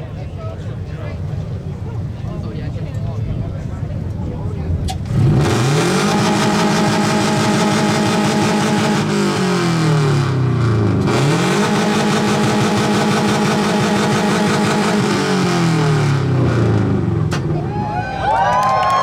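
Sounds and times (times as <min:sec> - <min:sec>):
car engine revving: 0:03.5 - 0:17.6.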